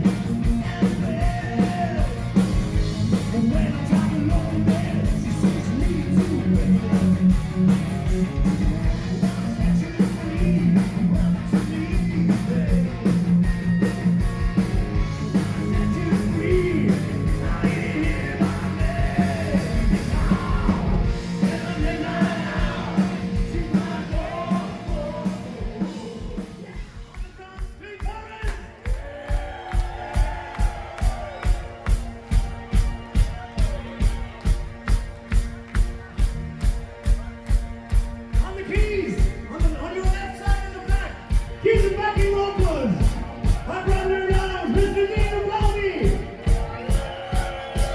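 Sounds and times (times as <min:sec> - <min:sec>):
live rock band playing: 0:00.0 - 0:27.8, 0:29.0 - 0:47.9
person singing: 0:03.2 - 0:07.4, 0:08.6 - 0:13.2, 0:15.6 - 0:27.2
kick drum beat: 0:26.8 - 0:47.9.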